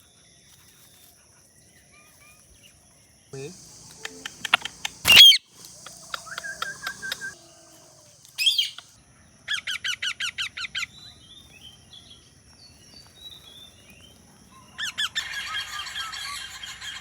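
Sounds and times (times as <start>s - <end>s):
faint chirping: 3.4s - 9.0s
parrot shrill squawks: 4.0s - 7.4s, 8.4s - 8.8s.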